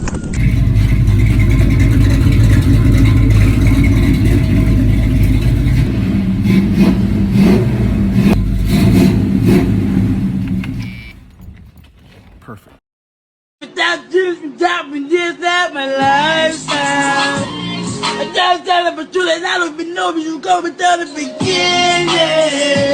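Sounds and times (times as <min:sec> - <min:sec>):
car engine running: 0:00.4 - 0:12.7.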